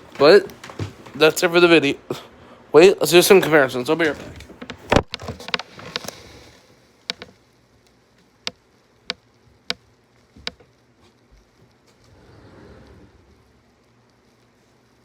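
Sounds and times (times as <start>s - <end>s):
low room noise: 0.0s - 15.0s
sharp clicks and taps: 7.0s - 7.4s, 8.2s - 10.8s.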